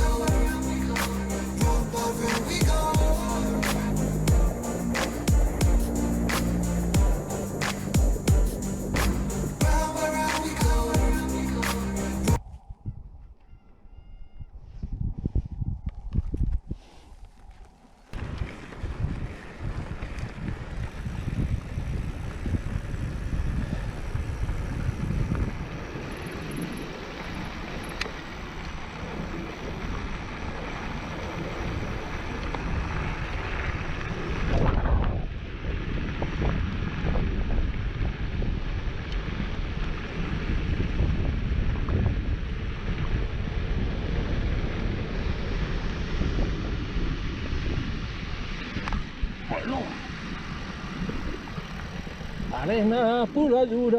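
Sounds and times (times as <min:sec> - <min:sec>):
wind buffeting microphone: 0:12.4 - 0:17.5, 0:18.1 - 0:53.4
bike rolling on dirt trail: 0:18.0 - 0:49.2.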